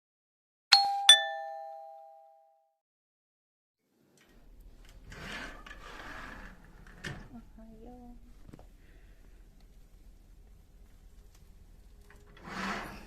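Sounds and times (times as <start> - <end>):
two-note chime: 0.7 - 2.6
faint room noise: 3.8 - 13.0.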